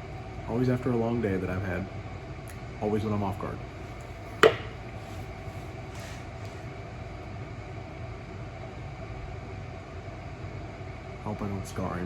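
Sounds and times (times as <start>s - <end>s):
low room hum: 0.0s - 12.0s
sharp knock: 4.4s - 4.8s.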